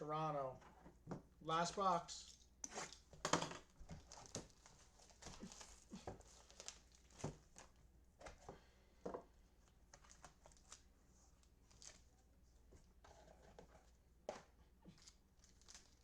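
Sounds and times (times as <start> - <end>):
plastic wrap crinkling and tearing: 3.9 - 7.8, 9.9 - 10.9, 11.6 - 12.1, 14.9 - 16.0.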